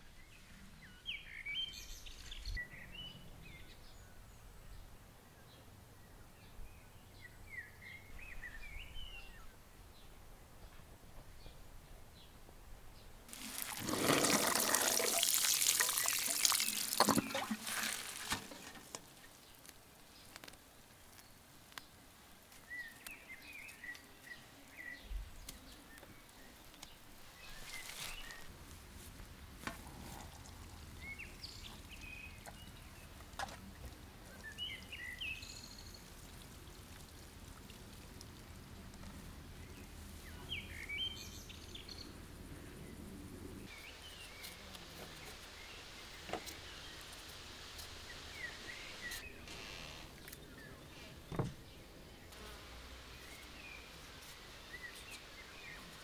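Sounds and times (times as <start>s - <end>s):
small birds chirping: 13.0s - 29.6s, 30.4s - 38.0s, 38.8s - 56.0s.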